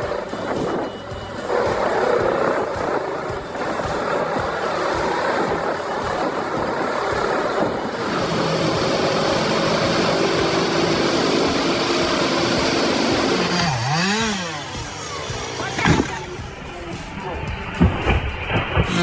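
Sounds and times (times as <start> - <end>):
dense mechanical noise: 2.2 - 19.0
heavy machine engine running: 7.6 - 19.0.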